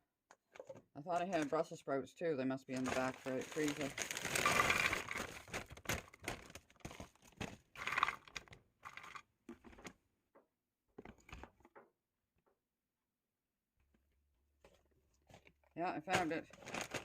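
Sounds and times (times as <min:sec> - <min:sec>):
plastic bags crinkling: 0:00.6 - 0:01.6, 0:02.7 - 0:09.2, 0:16.2 - 0:17.0.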